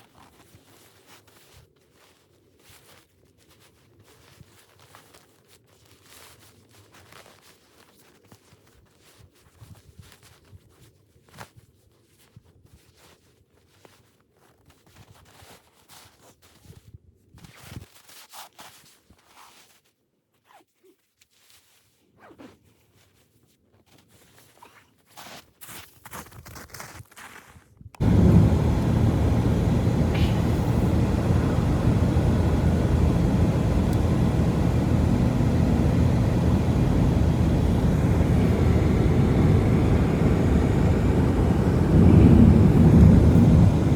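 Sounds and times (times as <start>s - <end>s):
loud low rumbling noise: 28.0s - 43.9s.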